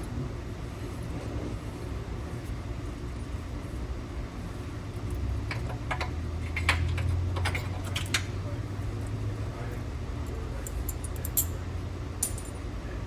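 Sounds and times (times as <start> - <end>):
steady low hum: 0.0 - 13.0
hand tools and bolts clinking: 10.6 - 11.6, 12.2 - 12.6.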